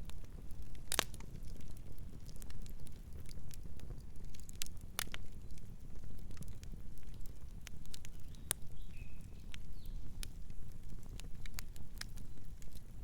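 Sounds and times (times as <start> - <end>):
campfire crackling and popping: 0.0 - 13.0
bird chirp: 8.2 - 10.1.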